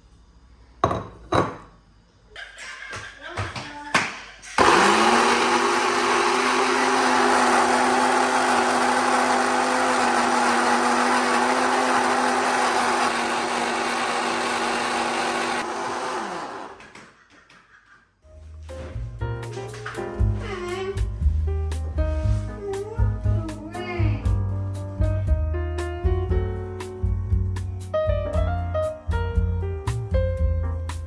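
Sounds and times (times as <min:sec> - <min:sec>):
electric blender motor: 0:04.6 - 0:16.9.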